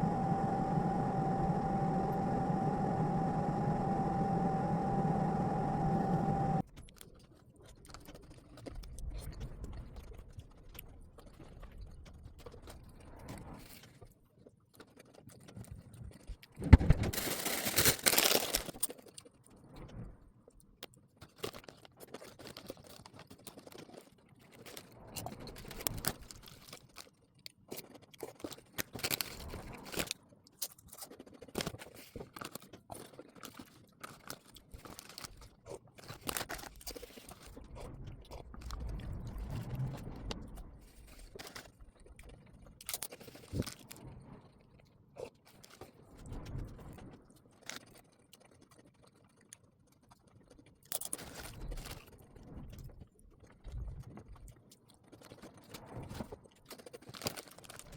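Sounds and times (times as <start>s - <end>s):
appliance hum: 0.0s - 6.7s.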